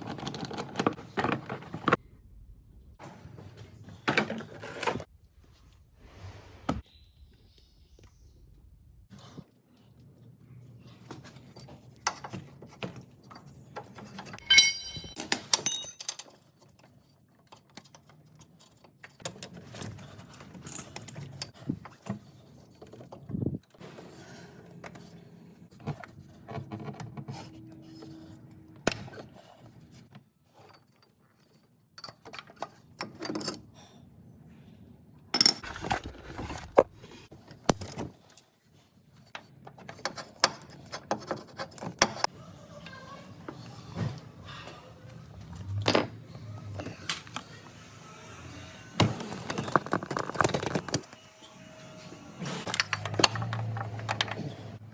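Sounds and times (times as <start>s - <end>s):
short metallic ring: 14.4s - 15.9s
metal hand tools clinking: 14.4s - 16.4s.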